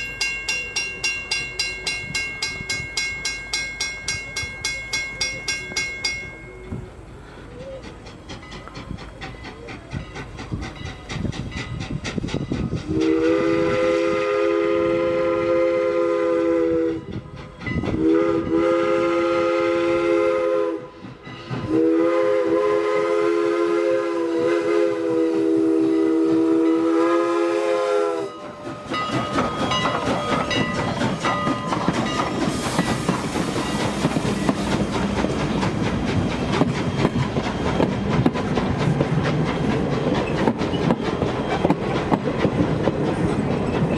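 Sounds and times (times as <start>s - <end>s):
wheels clacking over rail joints: 0.0s - 13.0s, 17.1s - 18.0s, 28.3s - 43.9s
train rumbling past: 0.0s - 43.9s
steam whistle blasts: 12.9s - 17.1s, 17.9s - 21.0s, 21.6s - 29.0s.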